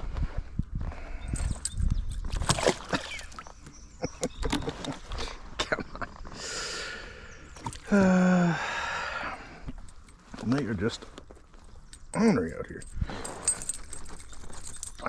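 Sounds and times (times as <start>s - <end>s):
fish thrashing and flopping: 1.5s - 5.2s.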